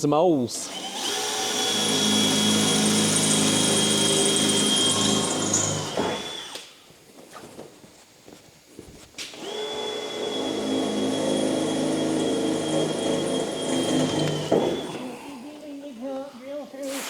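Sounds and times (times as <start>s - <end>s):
electric drill whining: 0.0s - 6.8s, 9.4s - 15.2s.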